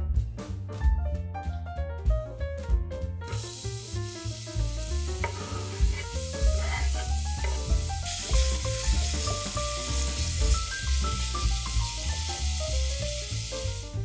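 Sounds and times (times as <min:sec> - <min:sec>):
food sizzling in oil: 0:03.3 - 0:14.0.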